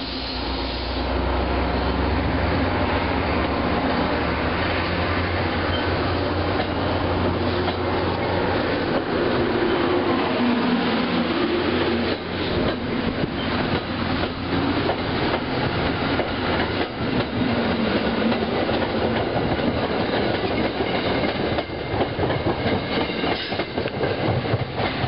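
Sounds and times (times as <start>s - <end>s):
train coaches rumbling past: 0.0s - 25.0s
steel wheels clacking on rails: 4.6s - 25.0s.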